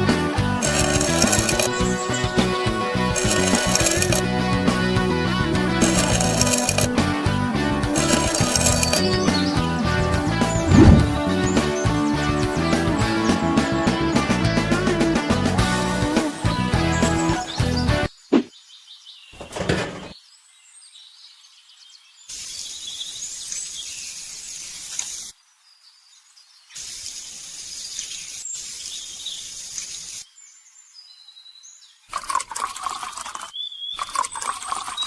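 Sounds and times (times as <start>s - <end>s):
small birds chirping: 0.0s - 4.2s, 5.8s - 7.0s, 8.0s - 14.2s, 16.2s - 35.0s
hissing rushing noise: 10.5s - 11.3s.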